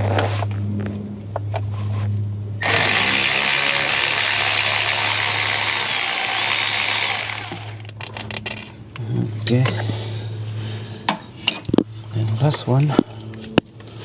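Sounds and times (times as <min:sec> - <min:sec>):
power tool running: 0:02.6 - 0:07.9.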